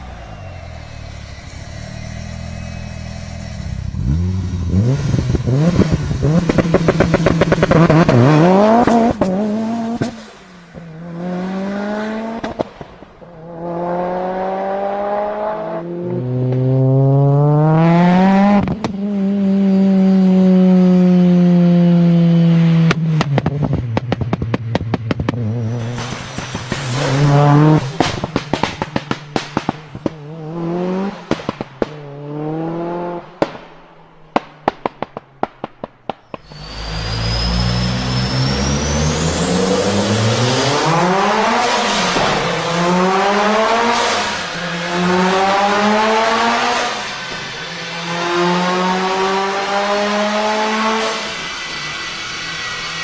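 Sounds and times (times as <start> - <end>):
engine revving: 0.0 - 35.5, 36.3 - 53.0
exhaust pops and crackles: 5.2 - 10.4, 22.8 - 30.4, 31.0 - 32.2, 33.4 - 36.5
turbo whistle: 36.3 - 40.2.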